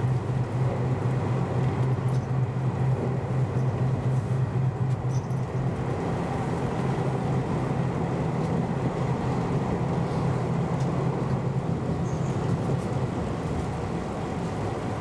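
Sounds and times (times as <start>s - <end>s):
train rumbling on board: 0.0s - 15.0s.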